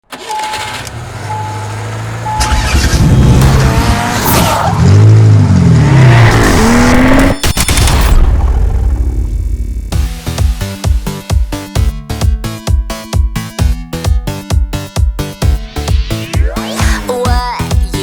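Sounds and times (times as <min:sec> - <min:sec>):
car engine revving: 0:00.1 - 0:09.9
short beeps: 0:00.3 - 0:01.6, 0:02.3 - 0:02.8
tire squeal: 0:03.8 - 0:05.2.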